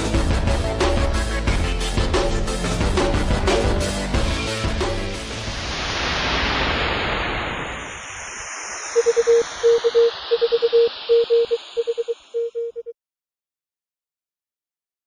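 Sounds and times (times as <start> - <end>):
radio static hiss: 6.7 - 12.6
morse code tone: 9.0 - 12.9.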